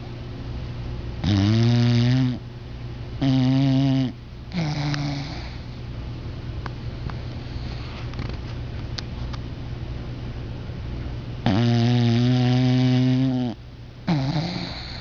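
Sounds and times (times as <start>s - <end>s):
dog snoring: 1.2s - 2.4s, 3.2s - 5.8s, 11.4s - 15.0s.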